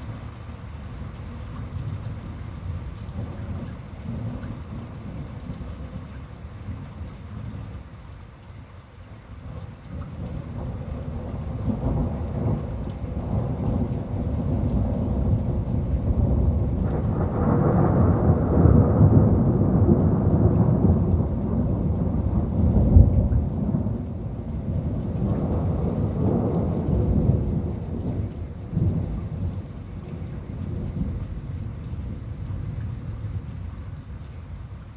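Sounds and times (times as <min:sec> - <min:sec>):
rolling thunder: 0:10.0 - 0:34.2.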